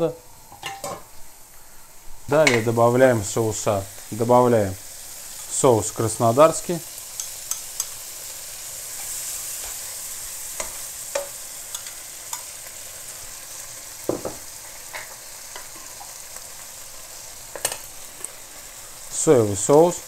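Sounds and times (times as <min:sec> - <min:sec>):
shrimp sizzling in oil: 0:00.0 - 0:20.0
spoon clicking against pan and jar: 0:07.2 - 0:08.0.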